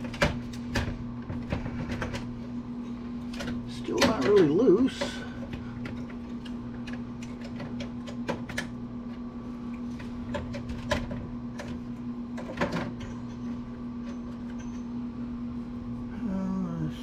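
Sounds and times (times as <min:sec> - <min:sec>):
clicks and knocks of computer parts: 0:00.0 - 0:02.3, 0:03.3 - 0:08.8, 0:10.0 - 0:11.8, 0:12.4 - 0:13.2
steady low hum: 0:00.0 - 0:17.0.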